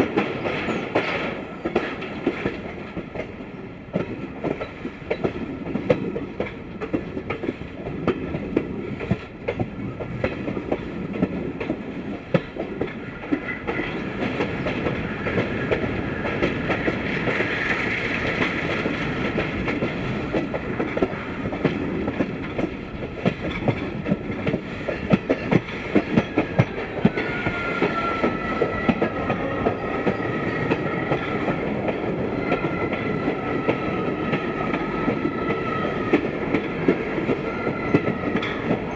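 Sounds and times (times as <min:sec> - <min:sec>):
train rumble: 0:00.0 - 0:38.9
train wheels clicking over rail joints: 0:00.0 - 0:38.9
high wheel squeal: 0:26.6 - 0:31.5.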